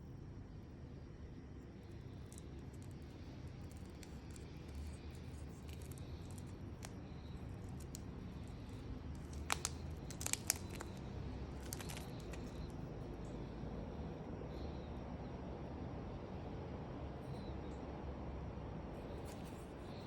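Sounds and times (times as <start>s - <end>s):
low steady hum: 0.0s - 20.0s
light clicks and rustles: 2.3s - 12.8s.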